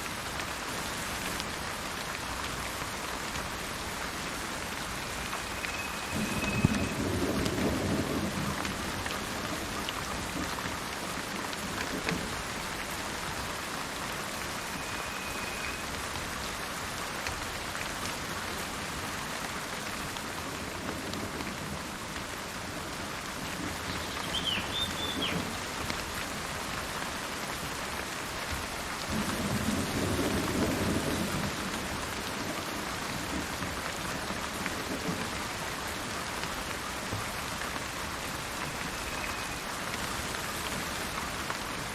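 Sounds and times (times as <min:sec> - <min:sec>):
steady rain falling: 0:00.0 - 0:41.9
distant thunder rumbling: 0:06.0 - 0:10.6
faint bird call: 0:23.9 - 0:25.4.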